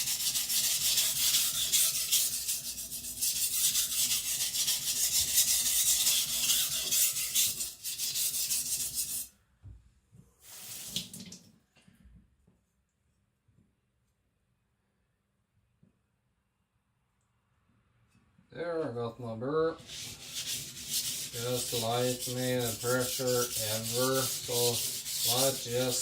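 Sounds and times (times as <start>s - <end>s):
knife grinding on whetstone: 0.0s - 9.3s, 19.8s - 26.0s.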